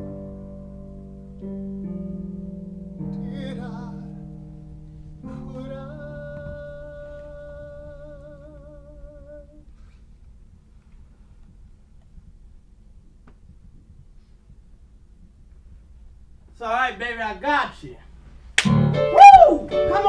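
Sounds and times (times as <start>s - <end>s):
sustained accompaniment chords: 0.0s - 9.1s
faint hum: 0.0s - 20.0s.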